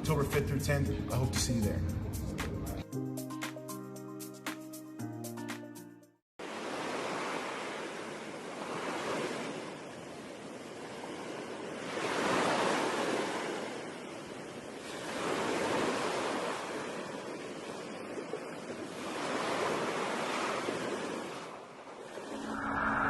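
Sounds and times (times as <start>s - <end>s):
ocean surf washing: 6.4s - 23.0s.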